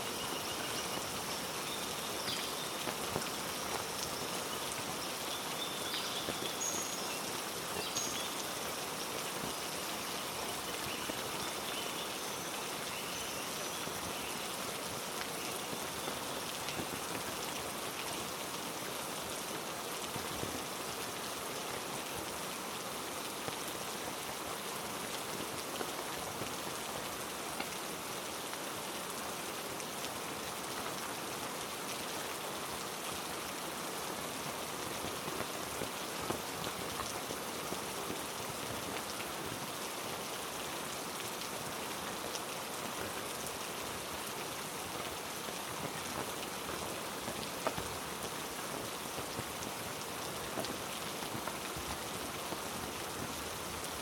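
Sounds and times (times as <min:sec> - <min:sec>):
heavy rain falling: 0:00.0 - 0:54.0
sharp water drips: 0:00.2 - 0:19.4.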